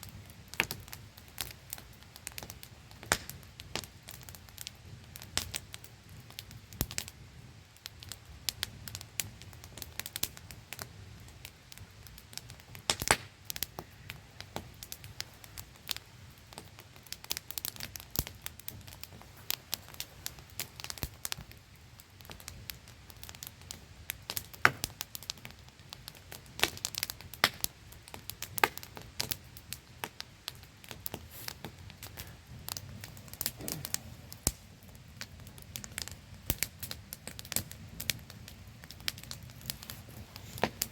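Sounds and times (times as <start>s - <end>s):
campfire crackling and popping: 0.0s - 40.9s.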